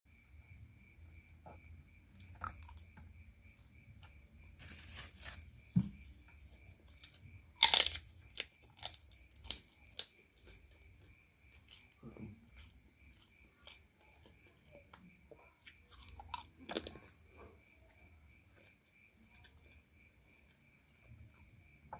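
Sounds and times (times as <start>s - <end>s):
sharp crunchy snaps: 1.5s - 20.5s
food packaging tearing and crinkling: 4.6s - 5.5s, 7.6s - 10.1s.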